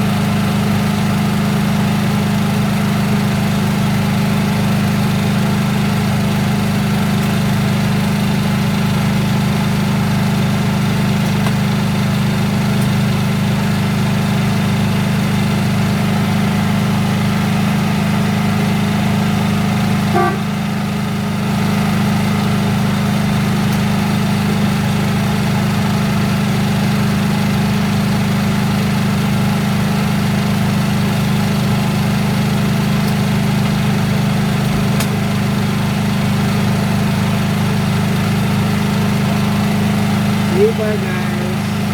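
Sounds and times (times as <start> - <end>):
speedboat engine humming: 18.0 - 26.2, 37.4 - 41.9.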